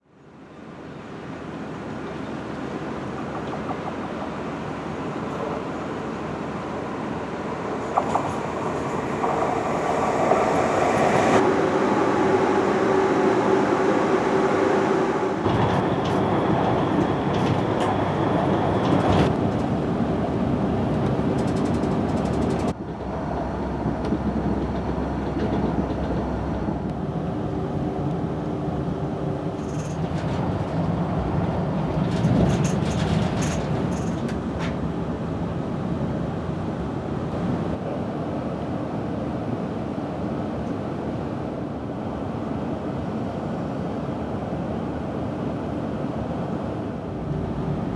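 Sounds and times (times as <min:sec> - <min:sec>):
passenger train running on rails: 0:00.0 - 0:47.9
high clicks from wheels: 0:20.9 - 0:23.2, 0:31.9 - 0:34.8.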